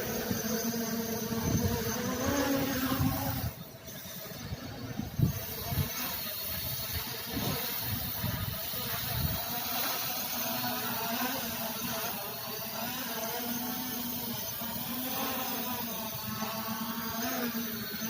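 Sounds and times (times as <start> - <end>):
wind buffeting microphone: 4.4 - 9.5.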